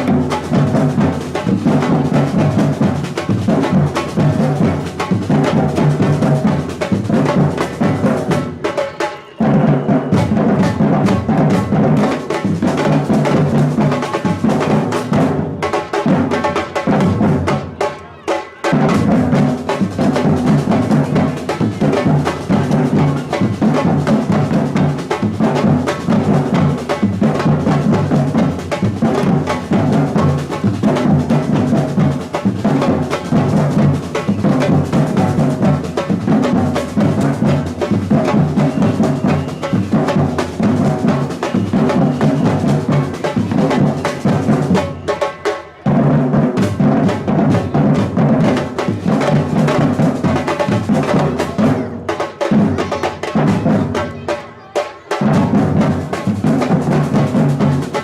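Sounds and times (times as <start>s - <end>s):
rattling snare drums: 0.0s - 58.0s
samba drum ensemble: 0.0s - 58.0s.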